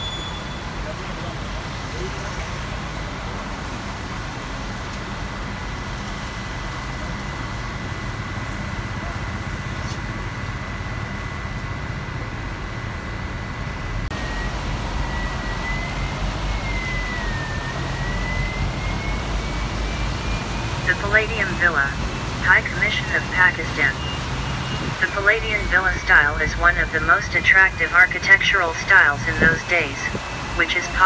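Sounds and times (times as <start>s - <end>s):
bus engine and road rumble: 0.0s - 31.0s
thin high whine: 6.6s - 31.0s.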